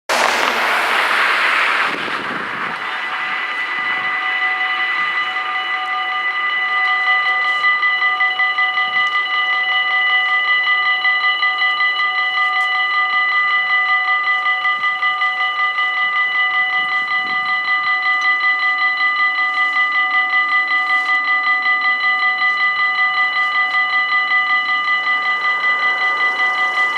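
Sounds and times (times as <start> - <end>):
level crossing warning bells: 0.1 - 26.9
passing train: 0.1 - 26.9.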